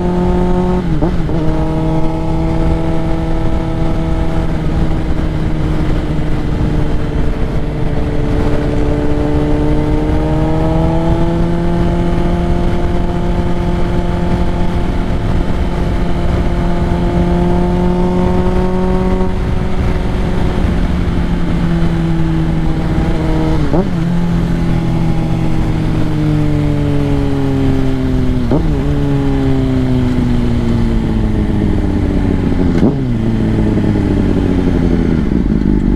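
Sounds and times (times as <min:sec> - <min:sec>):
motorcycle engine running: 0:00.0 - 0:35.9.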